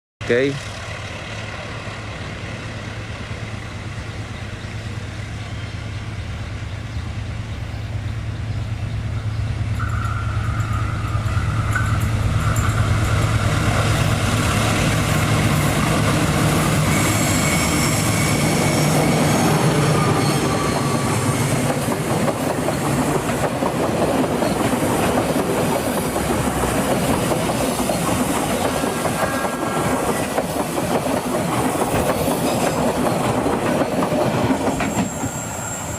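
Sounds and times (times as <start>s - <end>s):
locomotive engine hum: 0.5s - 35.9s
train wheels clattering over rails: 9.8s - 35.7s.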